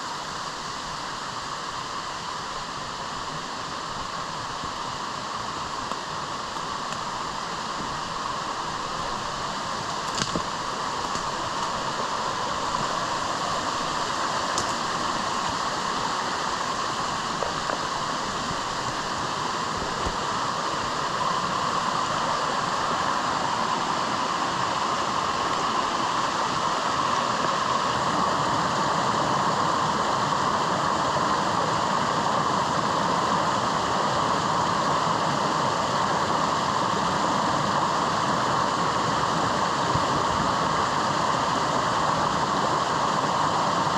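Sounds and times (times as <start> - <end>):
rain: 0.0 - 43.9.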